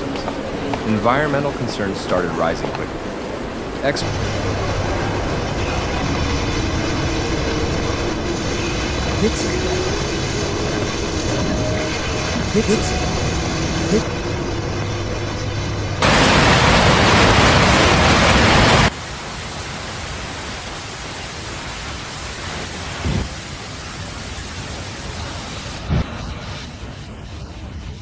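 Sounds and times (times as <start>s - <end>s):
heavy rain falling: 0.0s - 6.8s, 16.0s - 26.1s.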